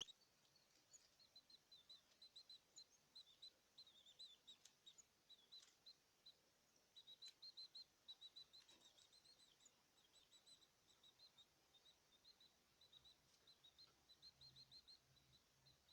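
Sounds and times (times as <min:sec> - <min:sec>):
birds chirping: 0:00.0 - 0:15.9
faint clicks: 0:04.5 - 0:06.0.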